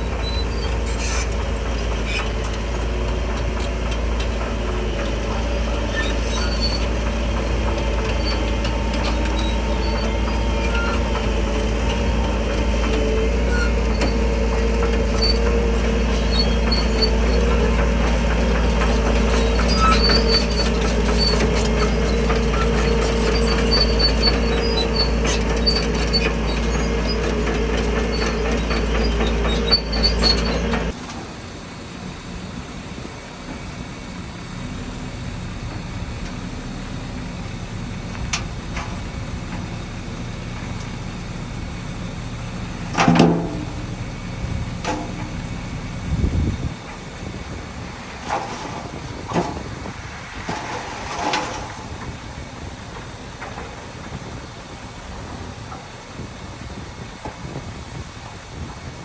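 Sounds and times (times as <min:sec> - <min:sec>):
steel tracks squeaking and clinking: 0:00.0 - 0:31.2
diesel engine under load: 0:00.0 - 0:59.0.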